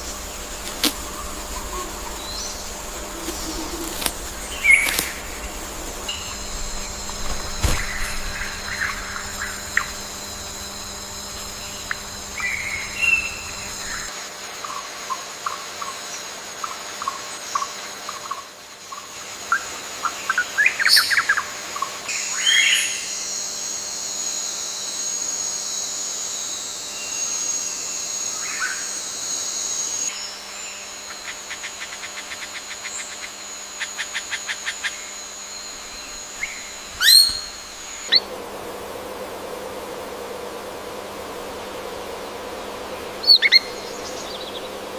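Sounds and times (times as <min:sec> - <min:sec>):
wild birds chirping: 0:00.0 - 0:14.1, 0:30.1 - 0:44.9
high-pitched insect drone: 0:00.0 - 0:44.9.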